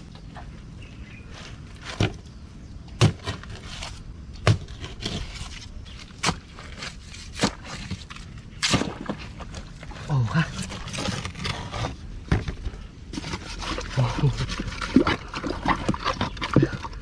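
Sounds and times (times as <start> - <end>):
digging tool chopping into mud: 3.0 - 3.4, 8.6 - 9.2.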